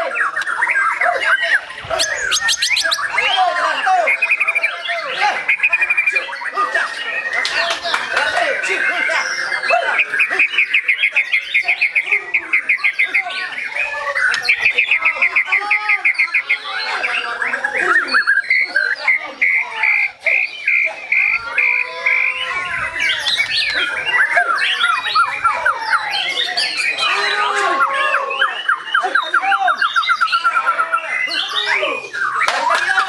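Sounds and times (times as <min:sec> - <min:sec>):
songbird singing varied song: 0:00.0 - 0:27.2.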